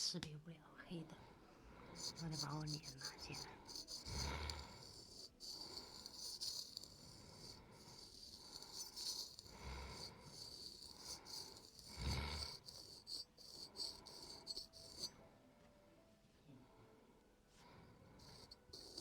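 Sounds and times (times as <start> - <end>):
razor scraping over skin: 1.9 - 15.1, 18.2 - 19.0.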